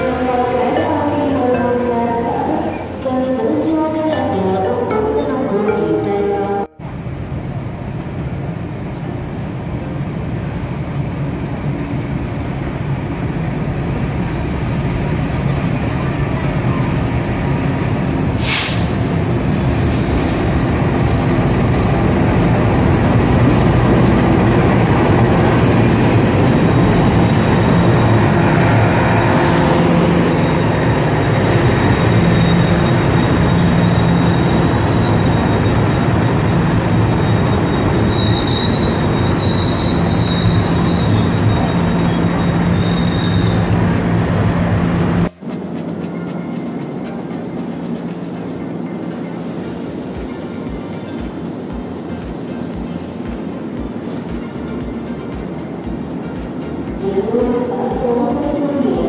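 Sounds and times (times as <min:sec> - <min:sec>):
train engine and rolling wheels: 0:00.0 - 0:59.0
sharp hiss: 0:18.4 - 0:19.0.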